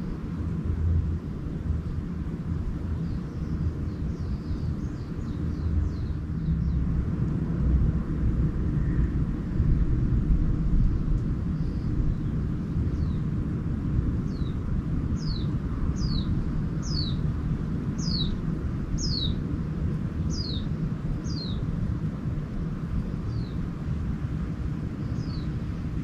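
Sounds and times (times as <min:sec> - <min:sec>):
steady low rumble: 0:00.0 - 0:26.0
songbird chirping: 0:02.9 - 0:06.9, 0:14.3 - 0:17.2, 0:18.0 - 0:18.4, 0:19.0 - 0:19.4.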